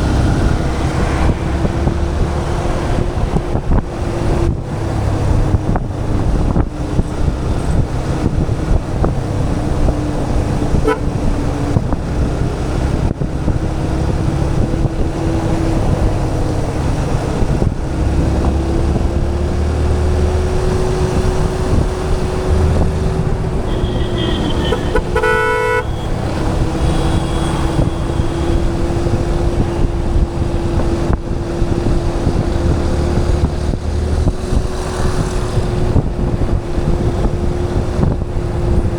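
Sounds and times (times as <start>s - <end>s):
motorcycle engine drone: 0.0s - 38.9s
wind noise on microphone: 0.0s - 38.9s
vehicle horn honk: 10.8s - 11.3s, 23.6s - 28.8s.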